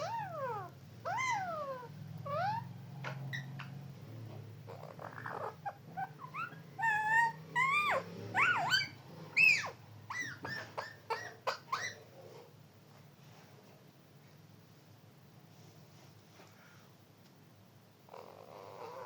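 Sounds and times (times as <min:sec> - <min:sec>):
parrot calling: 0:00.0 - 0:03.8, 0:04.6 - 0:12.2.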